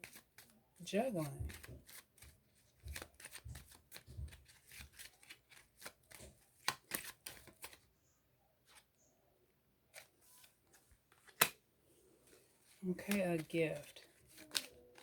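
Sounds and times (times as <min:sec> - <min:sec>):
cards being shuffled: 0:00.0 - 0:00.5, 0:01.1 - 0:07.9, 0:09.9 - 0:11.6, 0:12.2 - 0:15.0.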